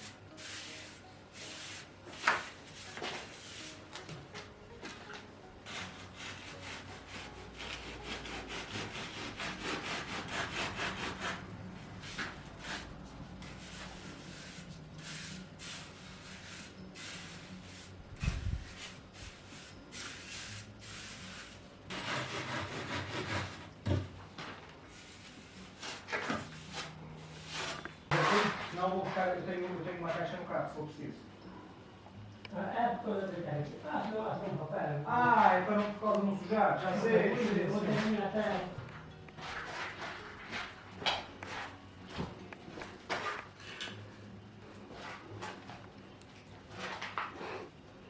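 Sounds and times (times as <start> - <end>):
sanding strokes on hard surface: 0.0 - 3.8, 5.7 - 11.4, 13.6 - 18.0, 18.6 - 23.7.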